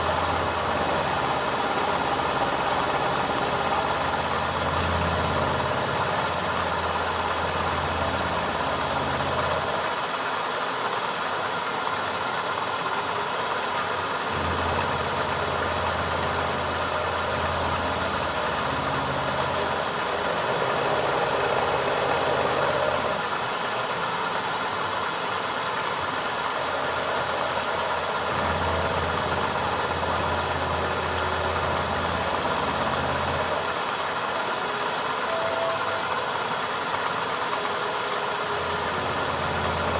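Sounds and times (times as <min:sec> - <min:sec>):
machine humming: 0:00.0 - 0:09.8, 0:14.3 - 0:23.2, 0:26.5 - 0:33.9.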